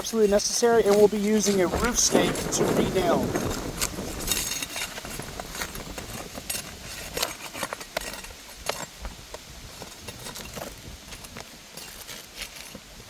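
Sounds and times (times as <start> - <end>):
pry bar scraping shingles: 0.0 - 9.2.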